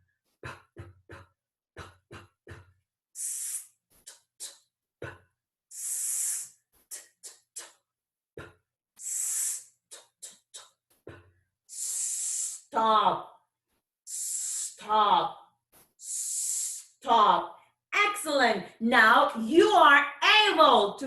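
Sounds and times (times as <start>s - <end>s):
woman sounding out phonemes: 11.8s - 13.3s, 14.1s - 15.4s, 16.0s - 21.0s.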